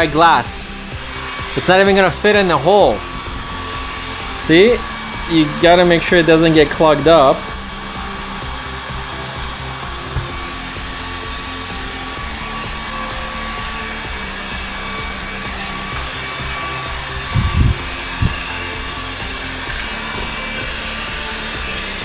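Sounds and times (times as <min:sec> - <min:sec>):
background music: 0:00.0 - 0:22.0
stick vacuum running: 0:00.0 - 0:22.0
short knocks: 0:10.0 - 0:10.6.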